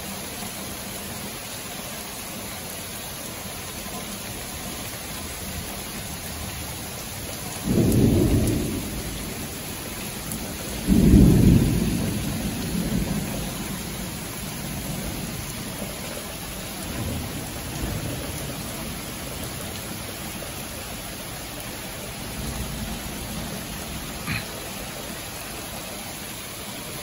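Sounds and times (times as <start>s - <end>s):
rain hissing: 0.0s - 27.0s
thunder rumbling: 7.6s - 24.4s.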